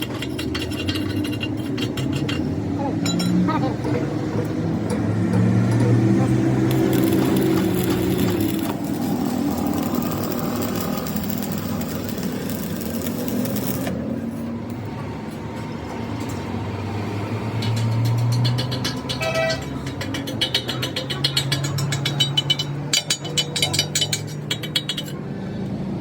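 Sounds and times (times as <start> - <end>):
mechanical clatter: 0.0 - 3.5, 4.5 - 14.2.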